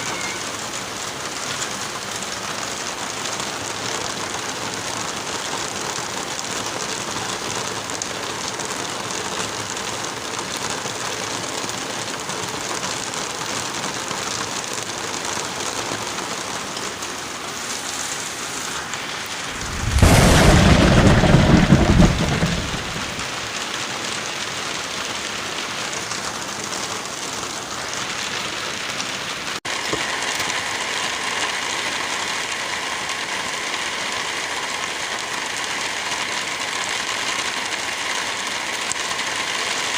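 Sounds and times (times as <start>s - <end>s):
heavy rain: 0.0s - 39.9s
rumbling thunderclap: 19.3s - 23.3s.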